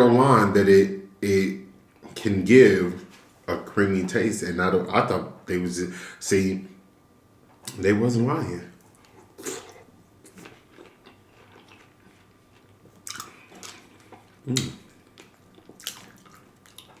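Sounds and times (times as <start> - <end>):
wet chewing with crunches: 8.8 - 17.0.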